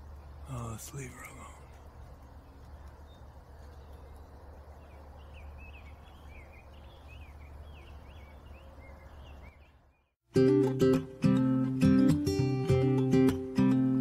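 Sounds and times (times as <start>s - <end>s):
bird twittering: 0.0s - 10.2s.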